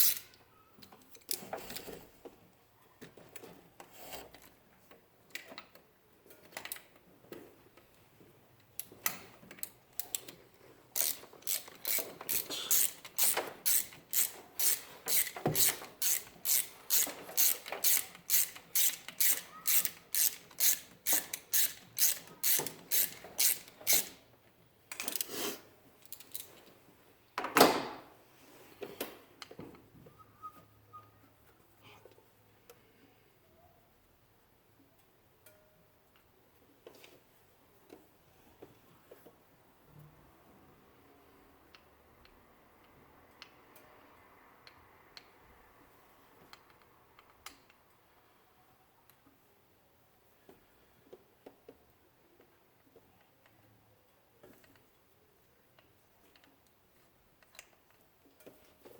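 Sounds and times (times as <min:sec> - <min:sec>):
ratchet wrench clicking: 0:00.0 - 0:00.4, 0:11.0 - 0:24.2.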